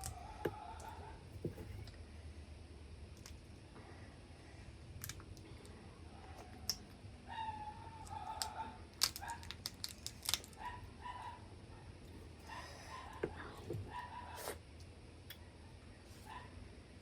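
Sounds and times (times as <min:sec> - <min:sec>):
crab shell cracking: 0:00.0 - 0:00.2, 0:05.0 - 0:05.4, 0:08.0 - 0:10.6.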